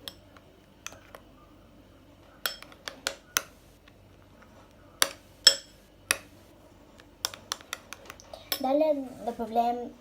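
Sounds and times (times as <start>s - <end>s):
utensil clinking against bowl: 2.4s - 3.5s, 5.0s - 6.3s.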